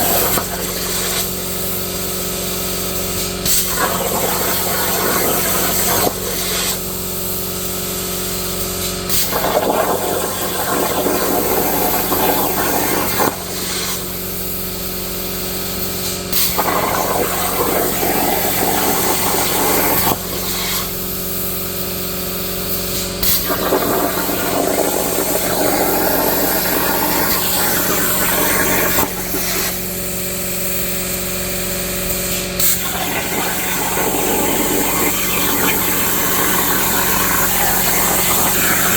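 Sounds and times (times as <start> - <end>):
plasma torch hissing: 0.0 - 38.9
machine hum: 32.4 - 38.9.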